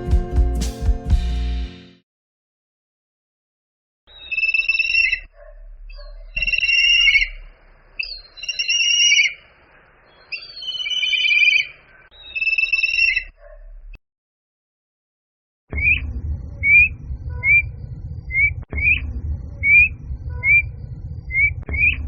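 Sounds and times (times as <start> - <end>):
bird of prey calling: 6.4 - 7.4, 8.0 - 13.3.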